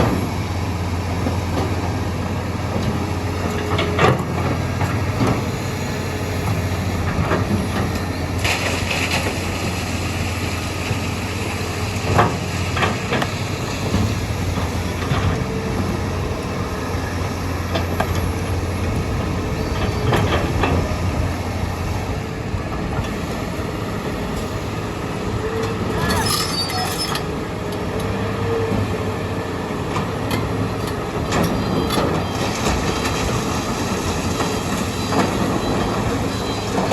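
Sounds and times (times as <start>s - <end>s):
diesel excavator engine running: 0.0s - 36.9s
machinery knocks and clanks: 12.0s - 21.4s.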